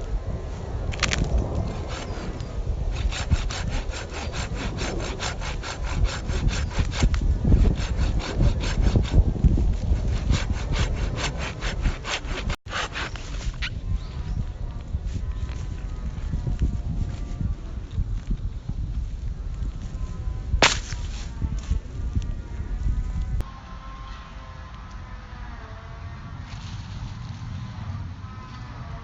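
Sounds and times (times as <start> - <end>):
hand saw cutting wood: 0.9 - 13.8, 20.6 - 21.7.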